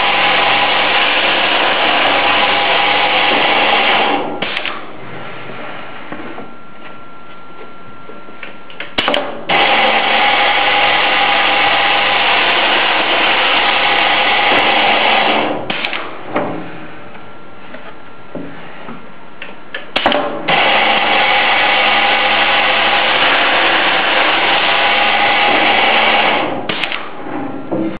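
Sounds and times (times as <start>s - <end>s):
drilling machine boring: 0.0s - 4.7s, 9.0s - 16.0s, 20.5s - 27.0s
drilling machine running: 0.0s - 5.4s, 9.0s - 16.0s, 20.4s - 27.0s
sharp click: 4.4s - 4.8s, 15.7s - 16.1s, 26.7s - 27.1s.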